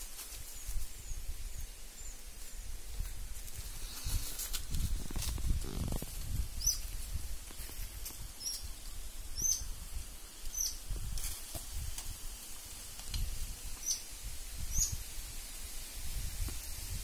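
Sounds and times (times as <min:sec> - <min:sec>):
rustling and low thumps: 0:02.8 - 0:08.4
bird chirping: 0:06.6 - 0:06.8, 0:09.3 - 0:09.7, 0:10.4 - 0:10.8, 0:13.8 - 0:14.1, 0:14.7 - 0:15.0.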